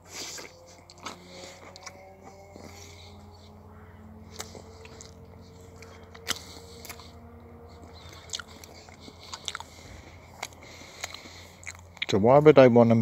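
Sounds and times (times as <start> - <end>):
chewing toast: 0.0 - 12.2.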